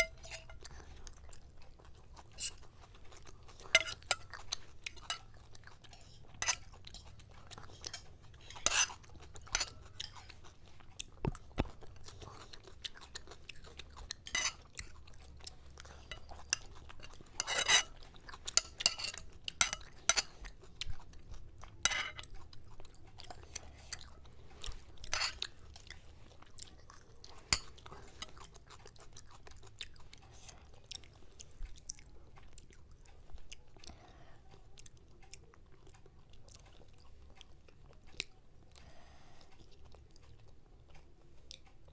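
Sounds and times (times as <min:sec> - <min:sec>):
cutlery clicking on plates: 0:00.0 - 0:00.7, 0:03.6 - 0:05.3, 0:06.0 - 0:10.4, 0:14.2 - 0:14.7, 0:16.0 - 0:20.4, 0:21.8 - 0:22.3, 0:25.1 - 0:25.4
chewing and crunching food: 0:00.0 - 0:41.9.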